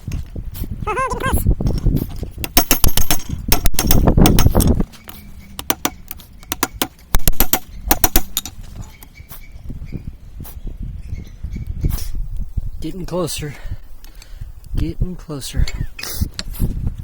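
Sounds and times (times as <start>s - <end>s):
hammer striking steel on anvil: 5.6s - 8.5s.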